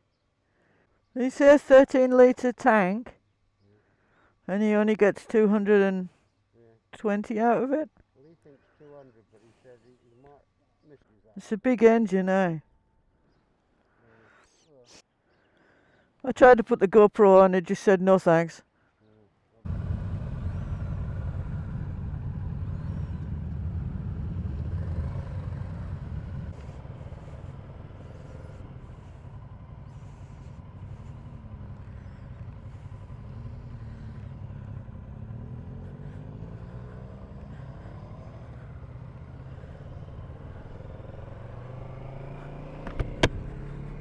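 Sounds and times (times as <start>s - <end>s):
wind rumble: 19.7s - 31.8s
motorcycle engine: 19.7s - 44.0s.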